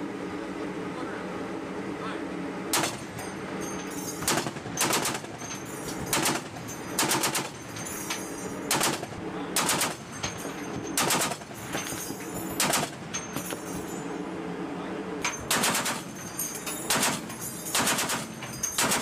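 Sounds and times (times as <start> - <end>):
steady low hum: 0.0 - 19.0
machine gun firing bursts: 4.2 - 5.4, 6.0 - 7.6, 8.7 - 10.1, 11.0 - 11.6, 12.6 - 13.0, 15.4 - 16.2, 16.9 - 19.0.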